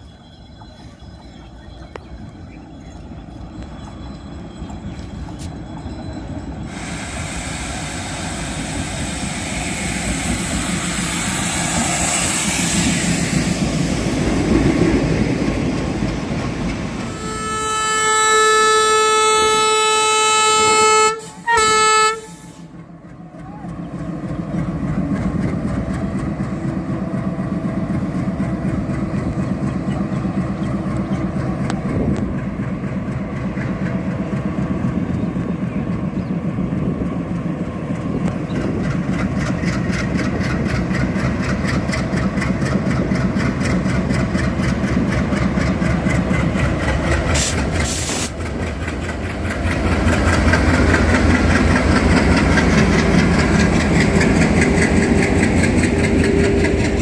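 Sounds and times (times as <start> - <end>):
locomotive engine hum: 0.0 - 57.0
train wheels on rails: 0.0 - 57.0
high hiss: 6.7 - 14.3.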